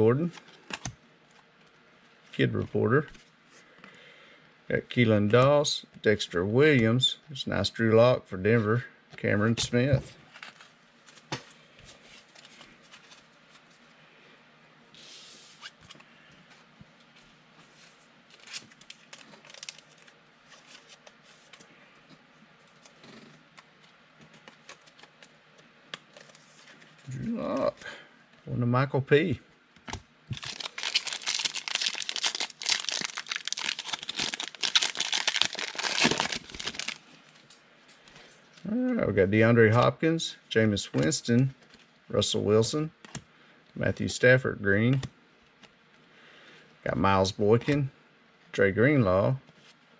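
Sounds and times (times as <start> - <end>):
card rustle: 17.7 - 21.7, 22.6 - 27.8, 29.9 - 38.3
foil wrapper tearing and crinkling: 18.4 - 20.1, 30.3 - 37.0.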